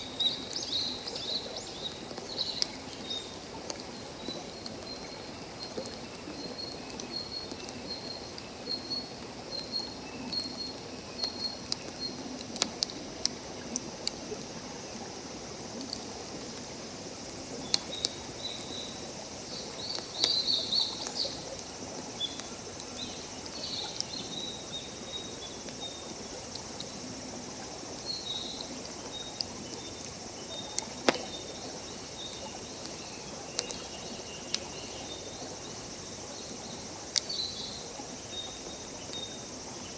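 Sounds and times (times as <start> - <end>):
running water hiss: 0.0 - 39.9
campfire crackling and popping: 30.7 - 33.0.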